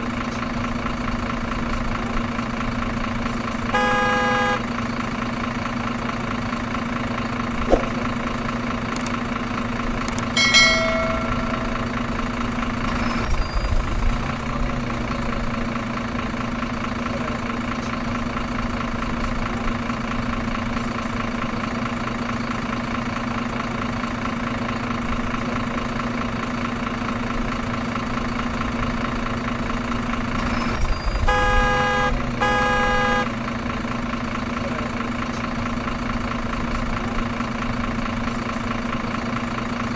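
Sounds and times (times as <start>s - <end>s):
truck engine droning: 0.0s - 39.9s
truck horn honks: 3.7s - 4.8s, 10.4s - 12.1s, 30.4s - 33.4s.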